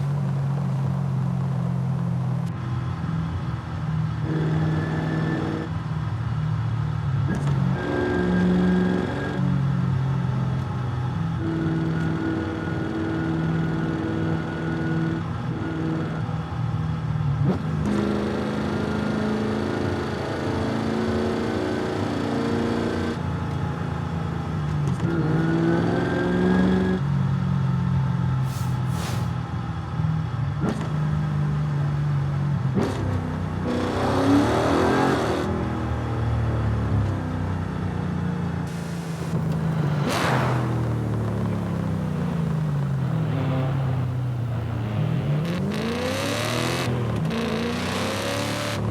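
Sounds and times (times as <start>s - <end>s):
car engine revving: 38.7s - 48.9s.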